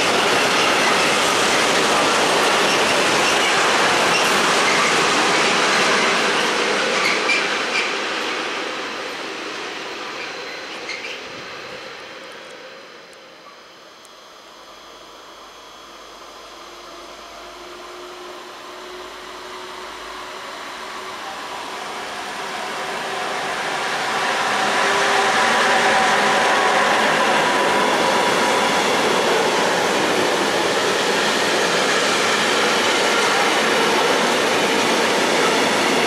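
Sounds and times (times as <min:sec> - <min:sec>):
freight train wheels rolling on rails: 0:00.0 - 0:13.5, 0:16.7 - 0:36.0.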